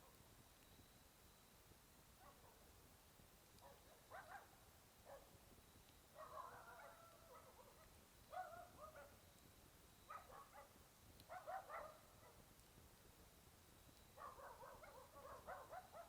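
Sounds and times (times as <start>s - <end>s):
dog barking faintly: 0.0s - 0.3s, 2.1s - 2.9s, 3.5s - 5.4s, 6.1s - 9.2s, 10.1s - 12.6s, 14.1s - 16.0s.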